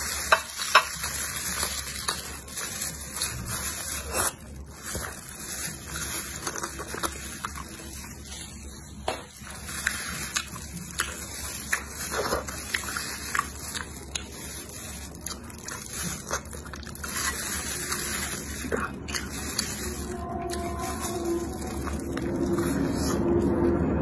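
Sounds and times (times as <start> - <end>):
wet chewing and lip-smacking: 9.6 - 19.8.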